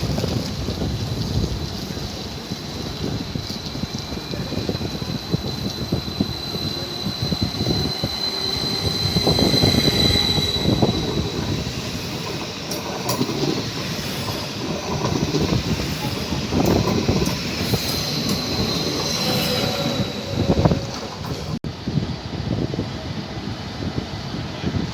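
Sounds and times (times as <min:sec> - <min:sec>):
train running gear rumble: 0:00.0 - 0:24.9
train wheels squealing: 0:03.0 - 0:21.6.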